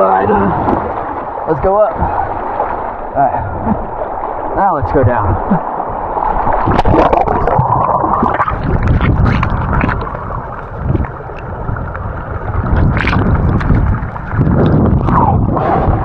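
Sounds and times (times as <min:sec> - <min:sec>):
knocks and splashes: 0:00.0 - 0:16.0.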